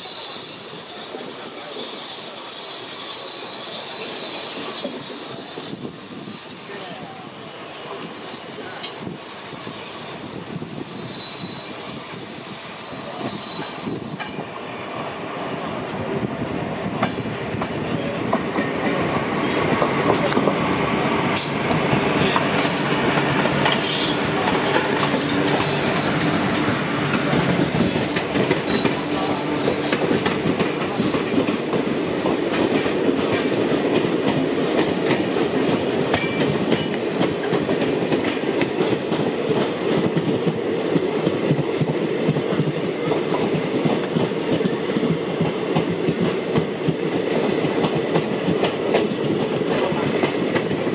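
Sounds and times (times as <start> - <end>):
high wheel squeals: 0.0 - 6.9, 8.3 - 14.3, 22.6 - 27.2
train rail rumble: 3.4 - 50.9.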